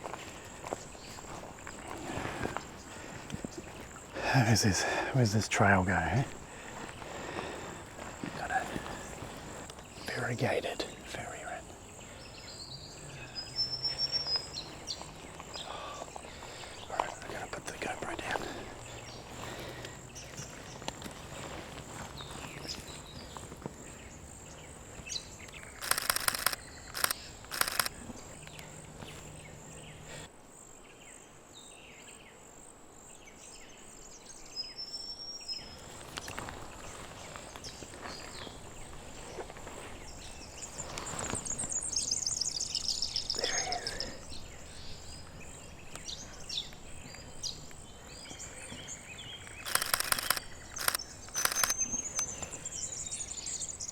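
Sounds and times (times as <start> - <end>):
high insect whine: 0.6 - 19.6, 23.9 - 30.8, 48.3 - 53.9
small birds calling: 2.1 - 30.2, 40.0 - 53.9
rapid clicking: 25.7 - 27.9, 49.5 - 52.2.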